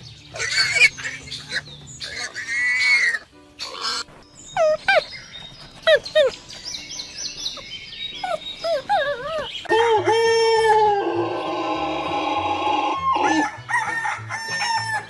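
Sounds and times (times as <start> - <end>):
rooster crowing: 10.0 - 15.0.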